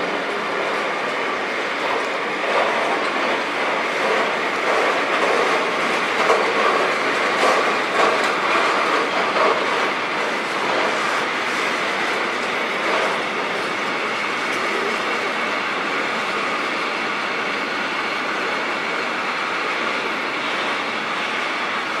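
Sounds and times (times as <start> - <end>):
train wheels clattering on rails: 0.0 - 22.0.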